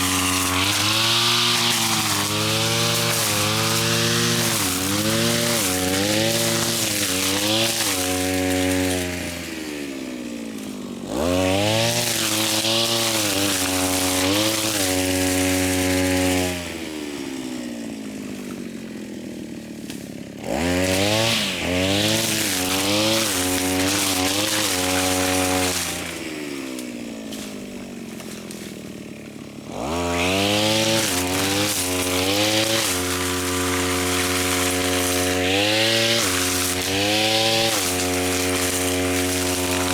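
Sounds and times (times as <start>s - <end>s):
grass cutter engine revving: 0.0s - 39.9s
hissing swish of cut grass: 30.7s - 39.9s.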